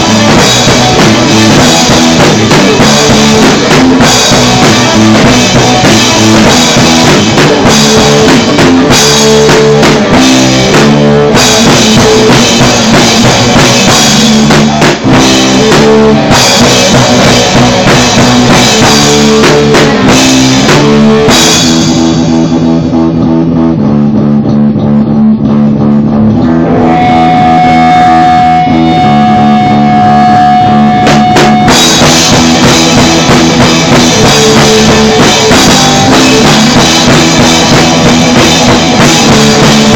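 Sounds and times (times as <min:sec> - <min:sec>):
bass guitar: 0:00.0 - 0:39.9
distorted electric guitar: 0:00.0 - 0:39.9
drum kit: 0:00.0 - 0:39.9.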